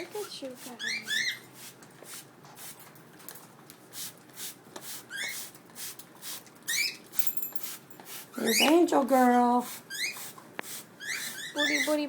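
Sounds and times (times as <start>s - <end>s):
cockatiel chirp: 0.8s - 1.5s, 6.7s - 7.0s, 11.0s - 11.9s.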